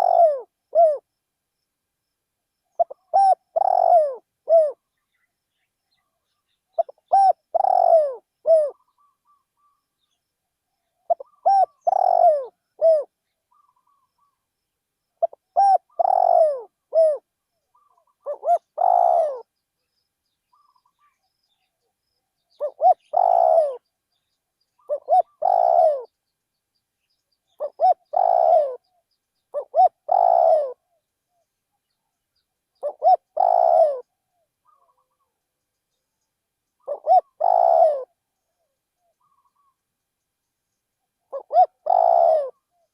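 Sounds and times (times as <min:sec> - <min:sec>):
dove cooing: 0:00.0 - 0:01.1, 0:02.7 - 0:04.9, 0:06.7 - 0:09.8, 0:11.0 - 0:14.4, 0:15.2 - 0:19.5, 0:22.5 - 0:23.9, 0:24.8 - 0:26.1, 0:27.5 - 0:31.4, 0:32.8 - 0:35.3, 0:36.8 - 0:39.8, 0:41.2 - 0:42.9.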